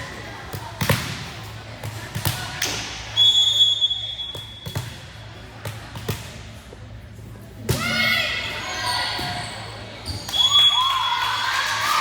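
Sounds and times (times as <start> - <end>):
volleyball thudding with echo: 0.4 - 3.0.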